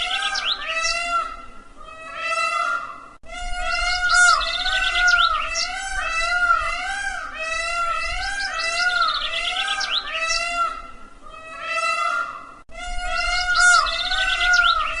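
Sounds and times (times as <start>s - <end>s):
small birds chirping: 0.0s - 1.5s, 3.6s - 6.7s, 7.5s - 11.6s, 13.0s - 15.0s
peacock calling: 0.0s - 15.0s.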